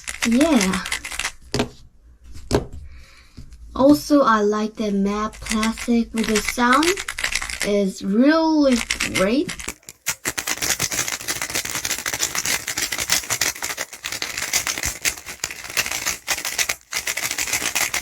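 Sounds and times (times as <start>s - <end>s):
puzzle cube turning clicks: 0.0s - 1.5s, 5.4s - 7.8s, 8.8s - 18.0s.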